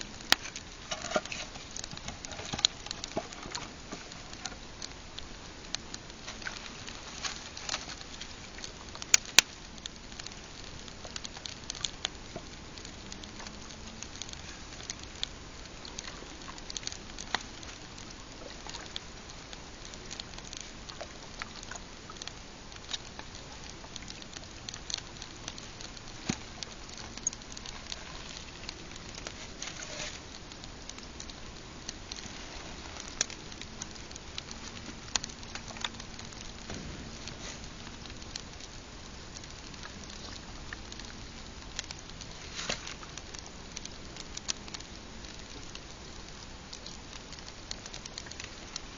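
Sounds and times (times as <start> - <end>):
campfire crackling: 0.0 - 48.9
fire snaps and pops: 0.0 - 48.9.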